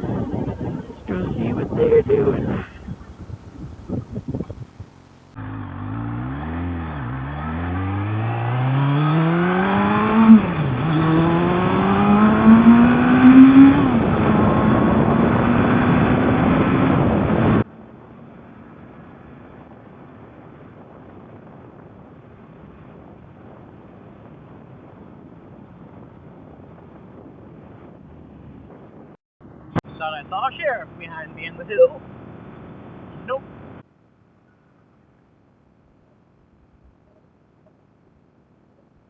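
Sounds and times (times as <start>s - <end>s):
motorcycle engine accelerating: 0.0s - 29.8s
faint wind and road noise: 0.0s - 39.0s.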